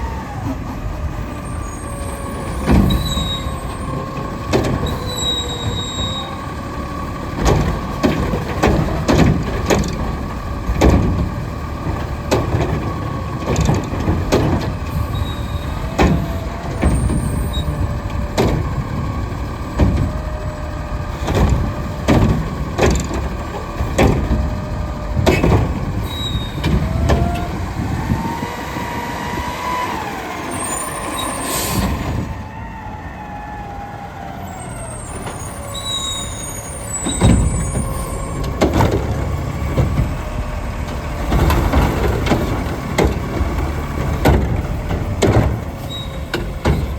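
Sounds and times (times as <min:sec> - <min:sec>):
garbage truck engine whining: 0:00.0 - 0:46.9
air brake hiss: 0:31.2 - 0:32.1.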